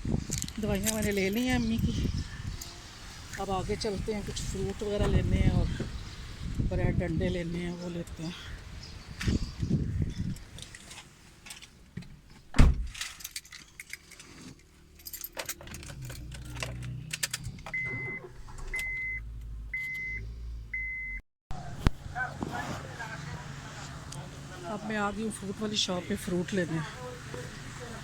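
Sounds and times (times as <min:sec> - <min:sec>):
car door thump: 0:12.5 - 0:12.9
car keys jangling: 0:12.9 - 0:18.9
dashboard high beeps: 0:17.8 - 0:18.2
car engine idling: 0:22.1 - 0:28.0.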